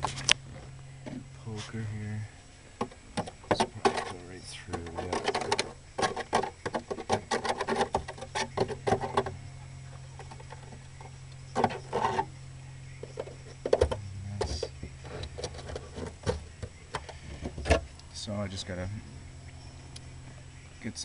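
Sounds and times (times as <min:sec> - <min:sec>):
steady low hum: 0:00.0 - 0:21.0
poker tapping and scraping metal: 0:02.8 - 0:12.4, 0:13.0 - 0:18.0.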